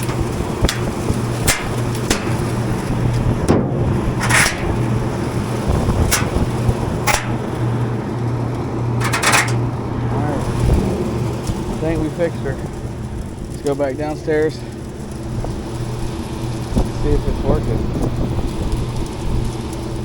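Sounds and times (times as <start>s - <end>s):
knocks and rustles: 0.0s - 7.8s, 9.0s - 9.8s
rooftop fan humming: 0.0s - 20.0s.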